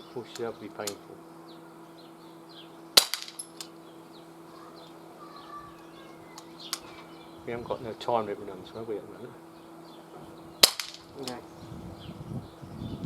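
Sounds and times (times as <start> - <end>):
bb pistol shot crack: 3.0 - 3.7, 10.6 - 11.4.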